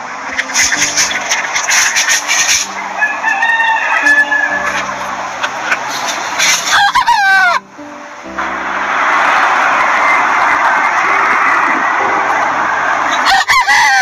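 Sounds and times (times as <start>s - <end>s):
chickens clucking: 0.0s - 8.0s
rooster crowing: 3.0s - 5.0s, 6.7s - 7.6s, 13.1s - 14.0s.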